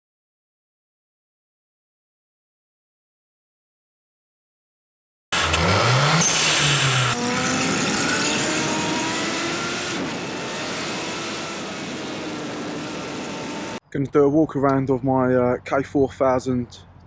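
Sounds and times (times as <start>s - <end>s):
motorcycle engine revving: 5.3s - 13.8s.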